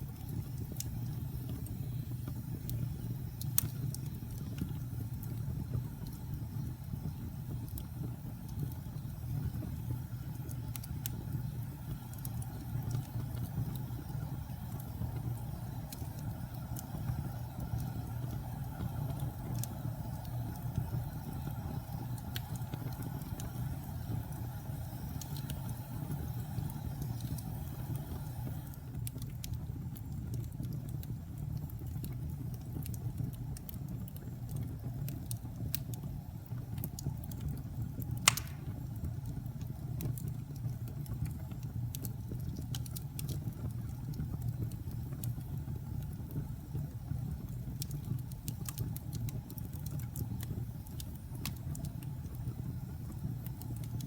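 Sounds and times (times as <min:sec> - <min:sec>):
fire crackling and popping: 0:00.0 - 0:54.0
fire rumbling in fireplace: 0:00.0 - 0:54.0.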